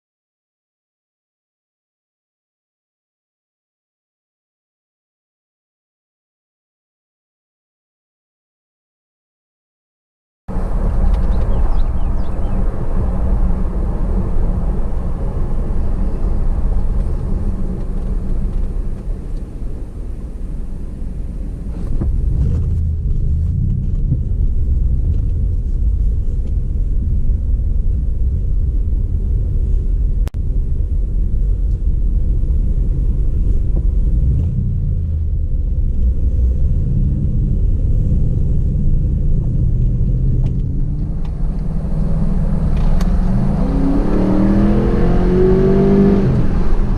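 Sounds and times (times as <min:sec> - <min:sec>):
car engine and road rumble: 0:10.5 - 0:46.9.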